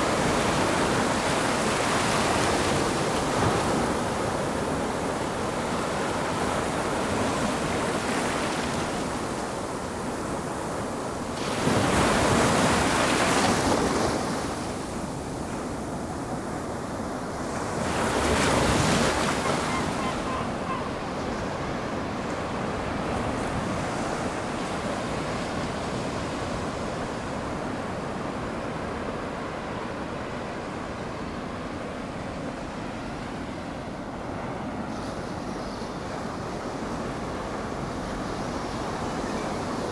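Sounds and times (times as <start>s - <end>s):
surf rushing on shore: 0.0s - 27.8s
waves breaking: 17.6s - 24.5s.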